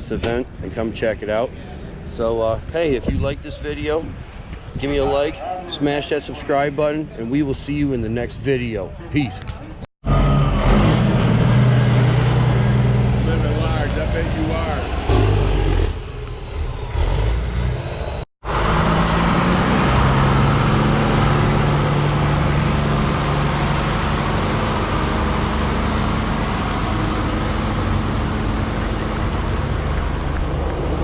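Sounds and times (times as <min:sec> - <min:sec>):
vehicle engine running: 0:10.1 - 0:31.0.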